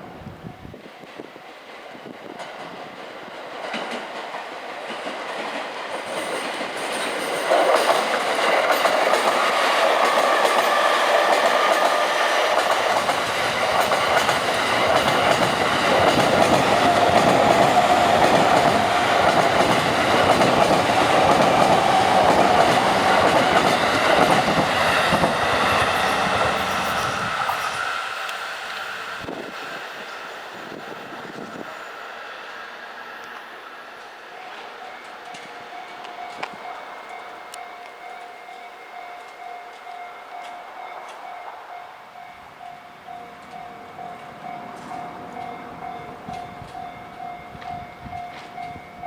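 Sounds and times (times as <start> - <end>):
train wheels clattering on rail joints: 1.0 - 28.4, 43.4 - 49.0.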